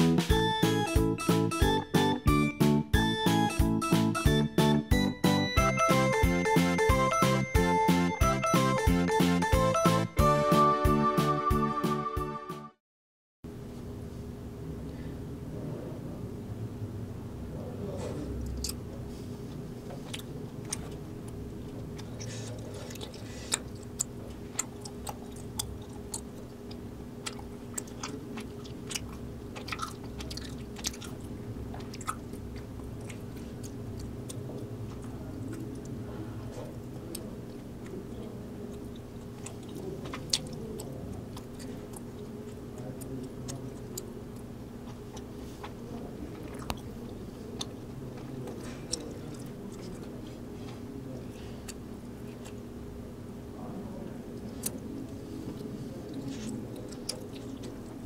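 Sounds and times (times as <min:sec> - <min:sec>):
low background hum: 0:13.5 - 0:58.0
chewing rice cakes: 0:18.1 - 0:52.7, 0:54.3 - 0:58.0.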